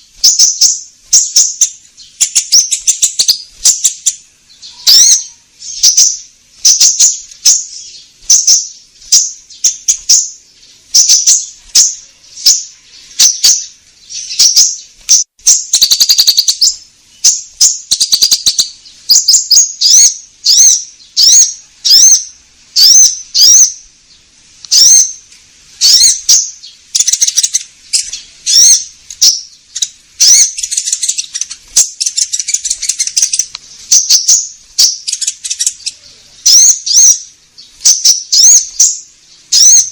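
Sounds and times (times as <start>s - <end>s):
buzzy bird chattering: 0.0s - 23.9s, 24.7s - 25.2s, 25.8s - 39.9s
bird trill: 0.0s - 39.9s
songbird chirping and whistling: 0.0s - 39.9s.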